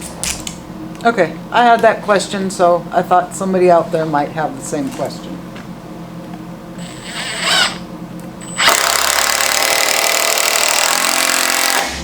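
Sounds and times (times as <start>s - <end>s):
power drill running: 6.8s - 12.0s.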